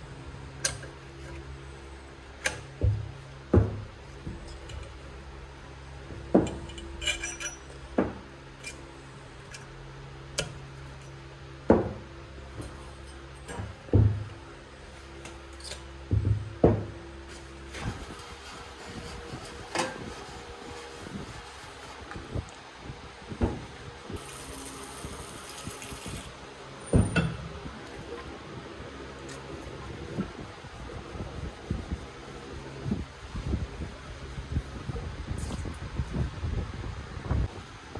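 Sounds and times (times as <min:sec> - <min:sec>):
steady low hum: 0:00.0 - 0:37.9
knocks of tools and parts: 0:02.4 - 0:05.0, 0:06.1 - 0:08.8, 0:11.6 - 0:14.4, 0:15.2 - 0:17.0, 0:23.4 - 0:23.8, 0:26.9 - 0:27.6
hiss: 0:24.2 - 0:26.3.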